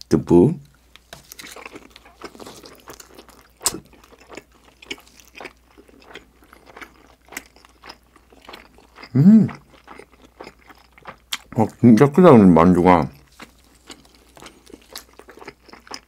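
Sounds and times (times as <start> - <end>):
crunches of crisp crust: 0.9 - 9.2
wet chewing mouth sounds: 1.2 - 11.8, 13.0 - 16.0.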